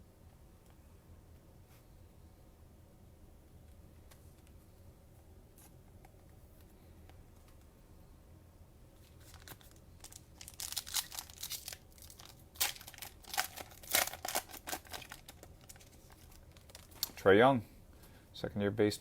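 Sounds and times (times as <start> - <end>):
cellophane wrapper tearing and crinkling: 9.0 - 17.2.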